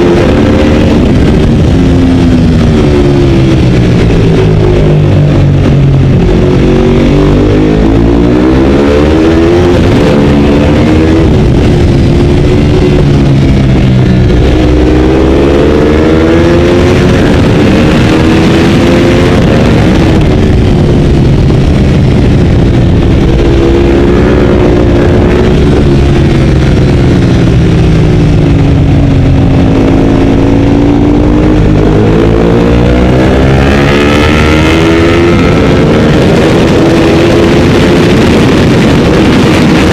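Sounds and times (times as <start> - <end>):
motorcycle engine revving at racing speed: 0.0 - 39.9.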